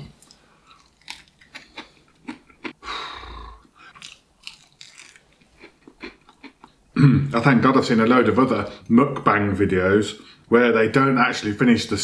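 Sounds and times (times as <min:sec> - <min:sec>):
crunchy chewing: 0:00.6 - 0:02.8, 0:03.8 - 0:06.8.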